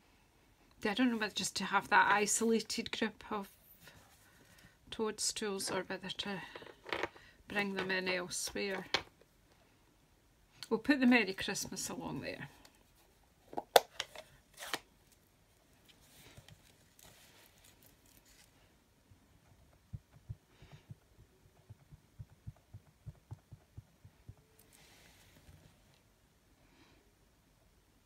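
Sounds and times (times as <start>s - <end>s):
paper rustling: 15.8s - 18.7s.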